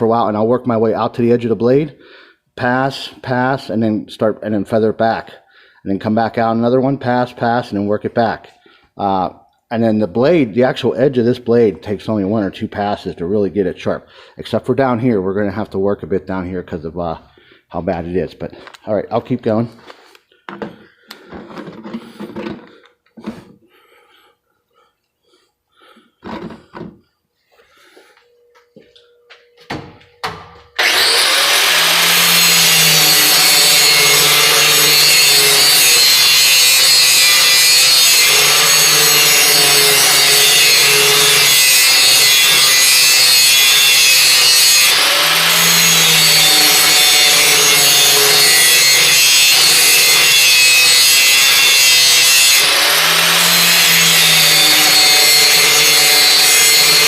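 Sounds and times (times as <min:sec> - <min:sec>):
angle grinder grinding steel: 0:19.9 - 0:24.9, 0:30.8 - 0:57.0.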